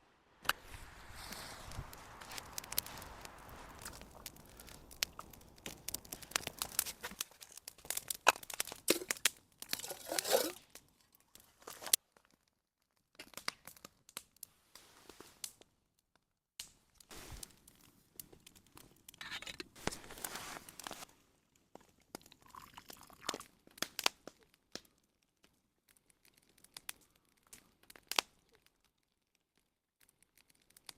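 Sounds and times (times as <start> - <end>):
dry material crackling and crunching: 0.6 - 14.4, 16.6 - 21.1.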